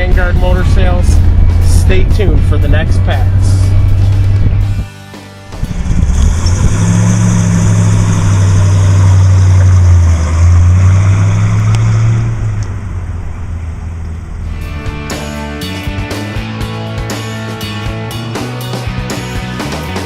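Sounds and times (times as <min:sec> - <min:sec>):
car engine accelerating past: 0:05.6 - 0:14.7.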